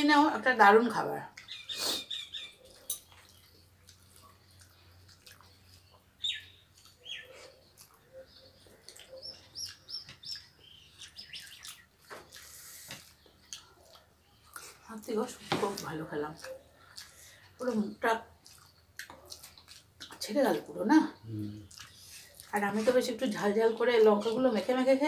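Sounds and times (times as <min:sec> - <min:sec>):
faint bird chirps: 0:01.4 - 0:14.6.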